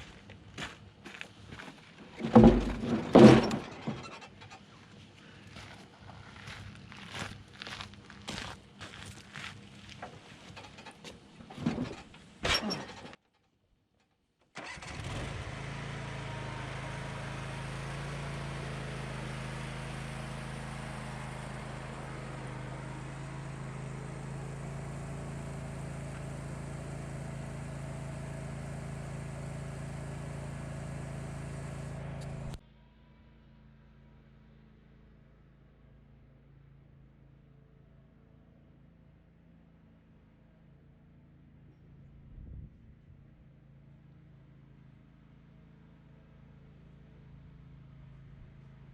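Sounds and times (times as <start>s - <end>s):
lawn mower engine running: 2.0s - 7.0s, 14.6s - 32.6s.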